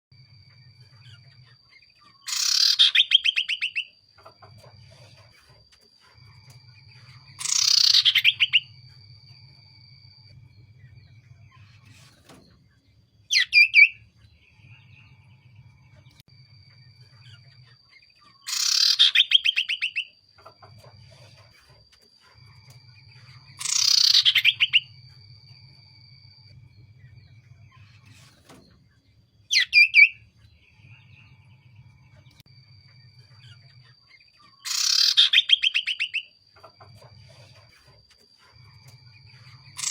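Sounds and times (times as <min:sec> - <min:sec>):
bird trilled call: 0:02.1 - 0:04.0, 0:07.4 - 0:08.7, 0:18.3 - 0:20.2, 0:23.6 - 0:24.9, 0:34.5 - 0:36.8.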